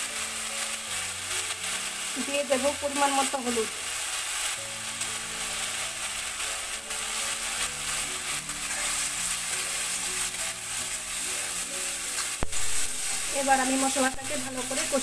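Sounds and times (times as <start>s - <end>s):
spice paste sizzling: 0.0s - 15.0s
spatula stirring and scraping: 3.2s - 15.0s.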